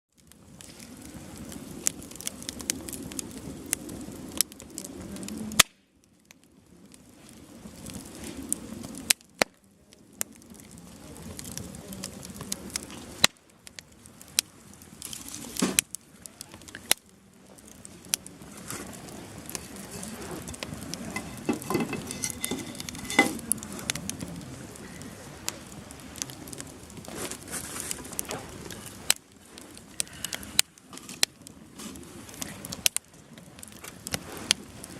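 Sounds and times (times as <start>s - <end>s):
bonfire flame hiss: 0.1s - 34.9s
firewood crackling and popping: 0.1s - 34.9s.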